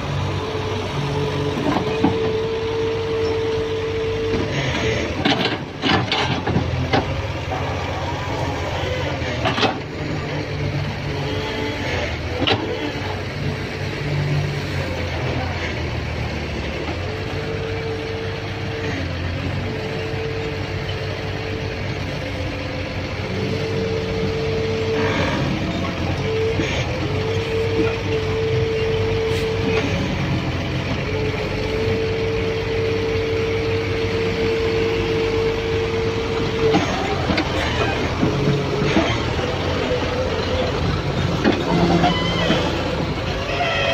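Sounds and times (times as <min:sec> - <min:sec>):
diesel engine under load: 0:00.0 - 0:43.9
hydraulic whine: 0:23.2 - 0:43.9.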